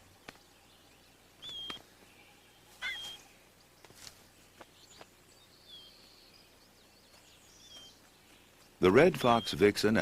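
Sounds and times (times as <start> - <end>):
high bird call whistles: 1.4 - 1.8, 2.8 - 3.2.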